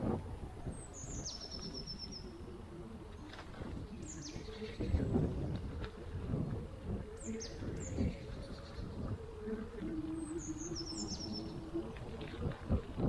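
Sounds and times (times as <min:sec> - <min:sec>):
small birds chirping: 0:00.7 - 0:02.5, 0:10.0 - 0:11.8.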